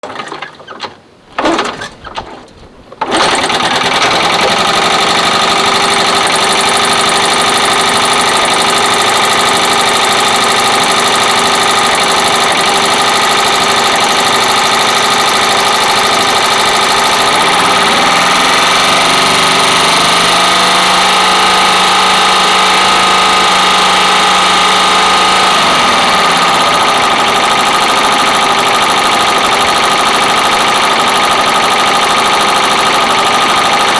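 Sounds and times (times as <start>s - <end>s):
machine running loud: 3.0s - 33.9s.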